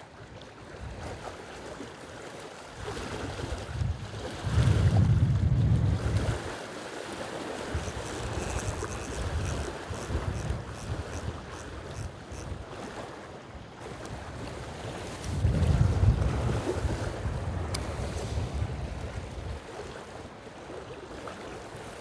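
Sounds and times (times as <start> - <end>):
choppy water: 0.0 - 22.0
rush of wind: 3.5 - 6.6, 13.8 - 19.8
wind buffeting microphone: 3.6 - 6.5, 7.7 - 12.9, 13.8 - 19.7
faint quick ticking: 7.7 - 13.0.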